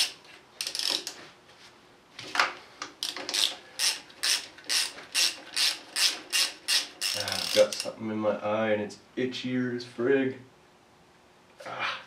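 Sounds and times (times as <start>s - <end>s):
ratchet wrench clicking: 0.0s - 1.2s, 3.0s - 7.9s.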